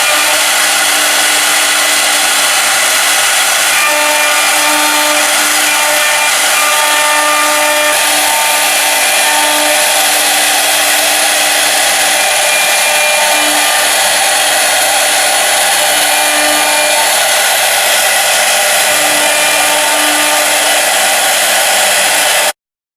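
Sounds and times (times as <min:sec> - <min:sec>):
router spindles machining: 0:00.0 - 0:22.6.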